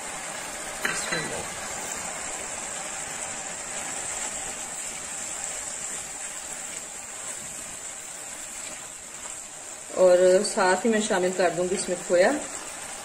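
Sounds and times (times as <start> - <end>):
food sizzling in a pan: 0.0 - 13.0
spatula stirring in a pan: 3.9 - 11.1.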